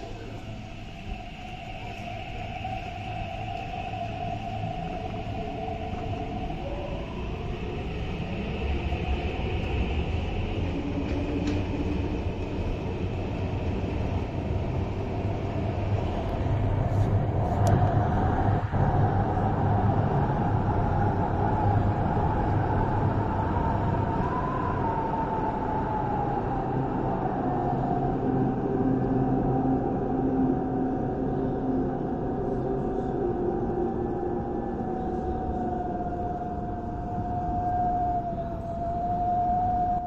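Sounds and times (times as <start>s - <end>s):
train low rumble: 0.0s - 40.0s.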